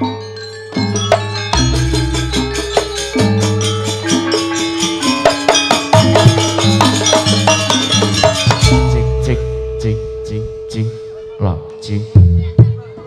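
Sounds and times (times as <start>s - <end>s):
struck percussion: 0.0s - 11.1s
gamelan music: 0.0s - 13.0s
held low tones: 6.0s - 13.0s.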